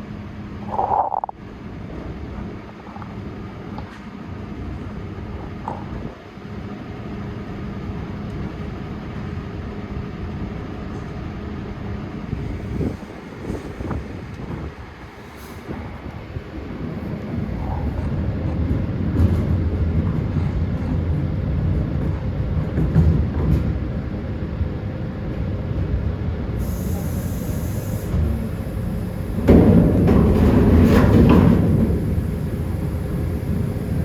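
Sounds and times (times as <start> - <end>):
traffic: 24.6 - 34.0
heavy machinery rumbling: 26.6 - 34.0.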